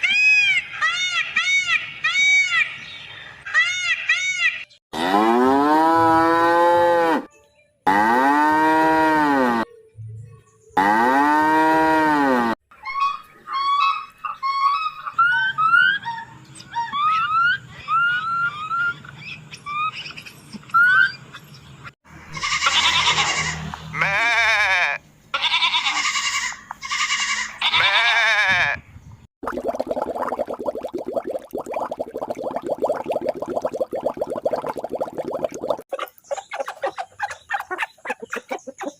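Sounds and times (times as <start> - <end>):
goat bleating: 22.4 - 28.7.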